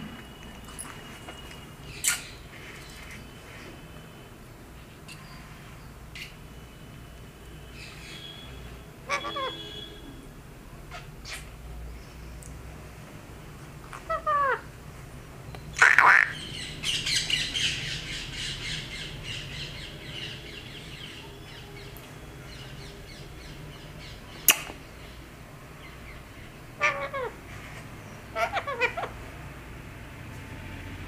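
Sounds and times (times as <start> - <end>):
parakeet calling: 7.7 - 10.0, 14.0 - 14.8, 15.7 - 25.2, 25.8 - 29.3
parakeet squawk: 9.1 - 9.9, 10.9 - 11.5, 14.0 - 14.7, 15.8 - 20.3, 26.1 - 27.4, 28.2 - 29.2.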